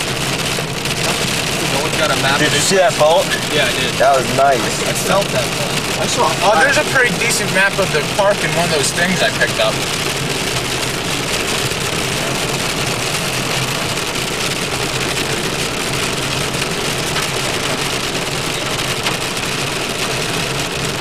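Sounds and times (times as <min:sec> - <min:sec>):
low engine hum: 0:00.0 - 0:21.0
rain on car roof: 0:00.0 - 0:21.0
tyres hissing on wet road: 0:00.0 - 0:21.0.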